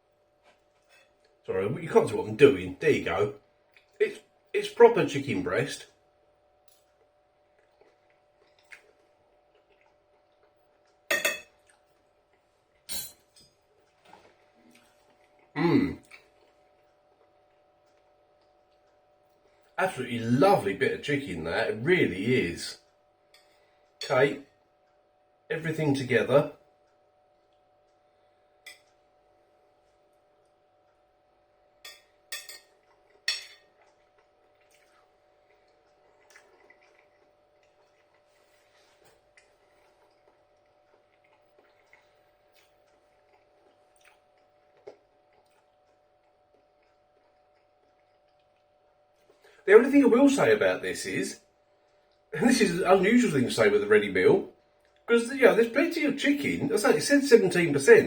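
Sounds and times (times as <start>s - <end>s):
cutlery clinking on a dish: 11.1s - 11.6s, 12.9s - 13.6s, 31.9s - 32.7s, 33.3s - 33.7s.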